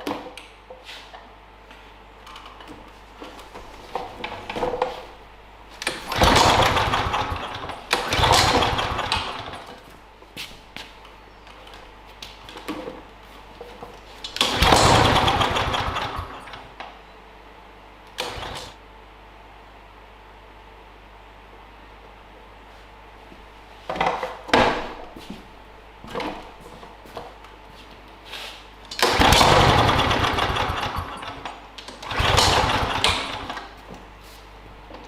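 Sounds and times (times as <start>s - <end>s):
lawnmower being pull-started: 5.8s - 9.9s, 14.2s - 16.8s, 18.2s - 18.8s, 28.9s - 33.8s
lawnmower engine bursts: 5.8s - 9.9s, 14.2s - 16.8s, 18.2s - 18.8s, 28.9s - 33.8s.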